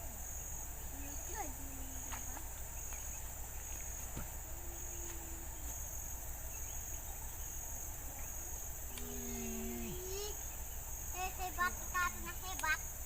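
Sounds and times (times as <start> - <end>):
faint low humming tones: 0.0 - 13.0
insect chorus: 0.0 - 13.0.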